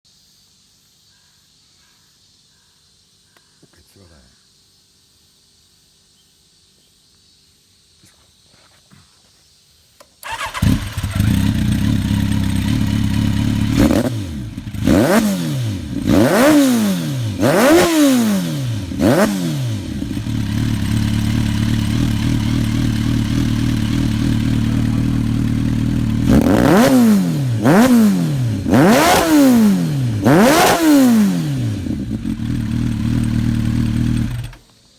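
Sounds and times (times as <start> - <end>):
motorcycle engine blipped: 10.2 - 34.7
motorcycle engine idling: 10.2 - 34.7.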